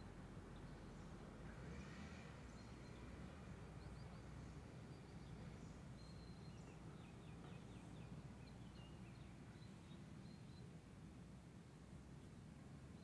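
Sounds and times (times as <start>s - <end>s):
songbird chirping: 2.4s - 10.7s.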